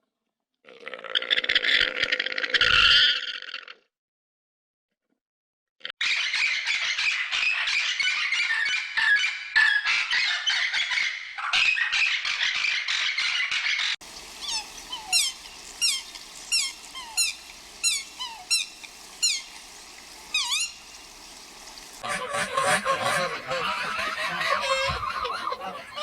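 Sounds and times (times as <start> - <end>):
birds squawking: 12.5 - 26.0
bird whistled call: 14.3 - 19.6, 20.3 - 20.9.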